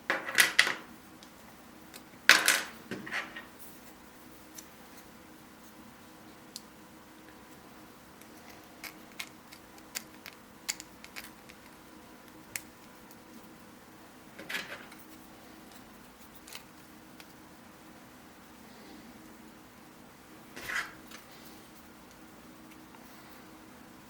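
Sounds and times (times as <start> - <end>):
faint steady hum: 0.0 - 24.0
plastic pieces clicking together: 8.8 - 11.8.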